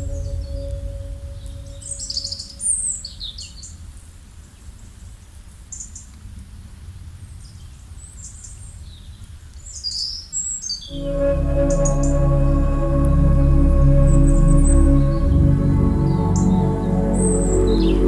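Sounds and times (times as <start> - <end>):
low steady rumble: 0.0 - 2.8, 10.9 - 18.0
singing bowl ringing: 0.0 - 2.9, 10.9 - 18.0.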